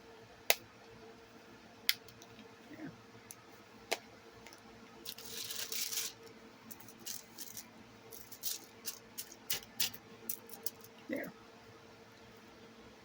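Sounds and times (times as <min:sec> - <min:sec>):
crinkling rustle: 0:05.1 - 0:09.8.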